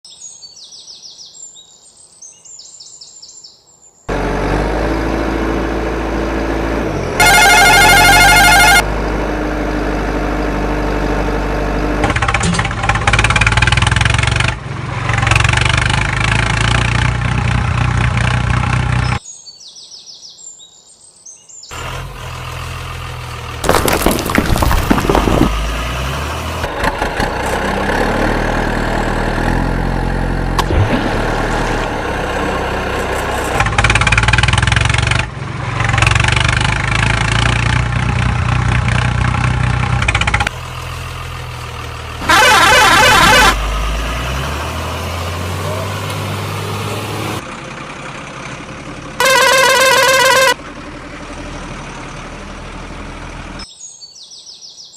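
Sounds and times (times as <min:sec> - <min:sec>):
heavy vehicle engines idling: 0:04.1 - 0:15.5, 0:25.0 - 0:53.6.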